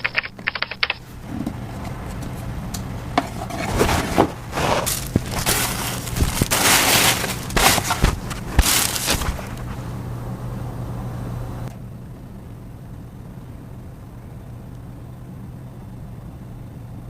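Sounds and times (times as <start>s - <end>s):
small clicks and knocks: 0.0s - 3.3s
packaging crinkling and rustling: 3.5s - 9.9s.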